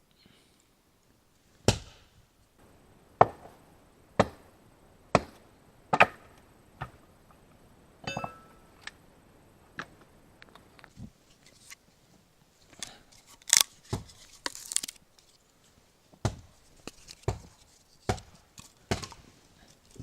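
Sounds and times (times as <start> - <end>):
axe chopping firewood: 1.6 - 2.1, 3.2 - 3.6, 4.2 - 4.5, 5.1 - 7.0, 13.5 - 14.1, 16.2 - 16.5, 17.2 - 19.2.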